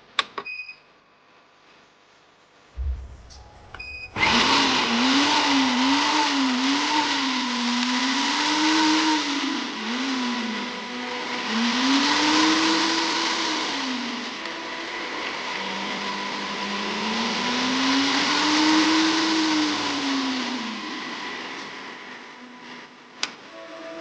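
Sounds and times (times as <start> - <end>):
low thump: 2.8 - 4.5
blender motor running: 4.1 - 23.0.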